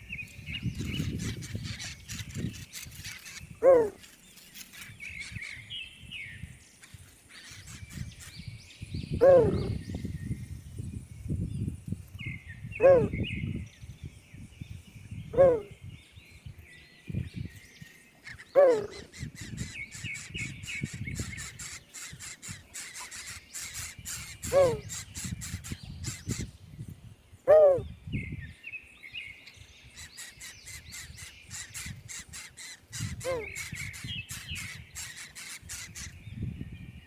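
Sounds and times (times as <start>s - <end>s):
high chirping of birds or insects: 0.0s - 37.0s
bird calling loudly: 2.1s - 4.1s, 9.2s - 9.8s, 12.8s - 13.2s, 15.4s - 15.8s, 18.3s - 26.4s, 27.5s - 27.9s, 30.1s - 36.2s.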